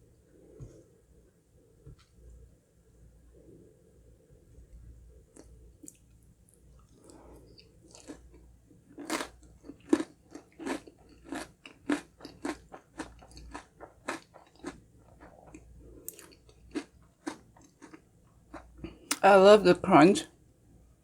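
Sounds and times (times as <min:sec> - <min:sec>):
crunchy chewing: 0:05.3 - 0:19.0.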